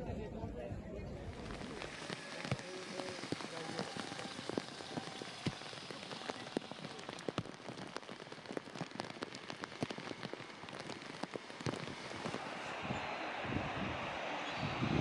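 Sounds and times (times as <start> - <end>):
heavy rain on water and cars: 1.4 - 15.0.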